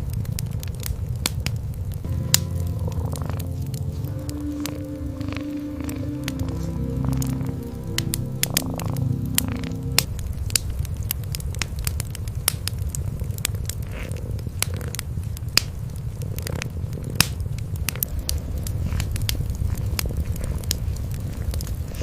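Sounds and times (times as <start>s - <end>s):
fire crackling and popping: 0.0s - 22.0s
cats purring: 2.1s - 10.1s, 12.8s - 22.0s
held music notes: 2.1s - 10.2s.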